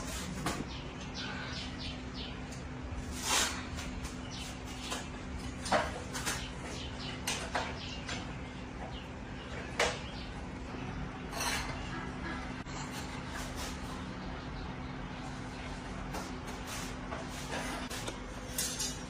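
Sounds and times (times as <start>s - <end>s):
steady low hum: 0.0s - 19.0s
tools and bicycle parts clicking: 18.5s - 19.0s.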